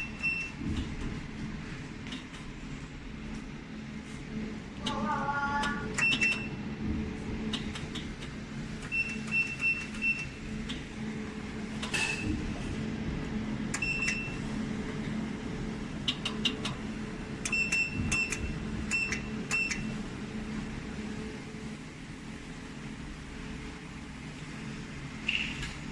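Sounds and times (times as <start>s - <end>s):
low machine hum: 0.0s - 25.9s
laser welder ticking: 4.8s - 6.6s, 7.4s - 11.0s.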